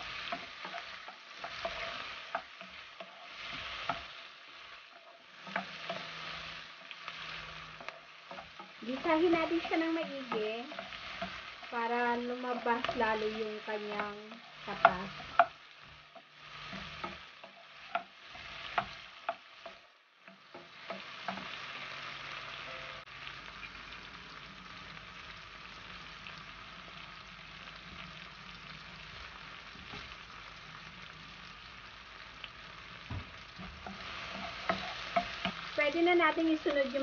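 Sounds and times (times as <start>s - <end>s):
vegetables sizzling in oil: 0.0s - 37.0s
wooden spatula knocking pan: 7.8s - 21.6s.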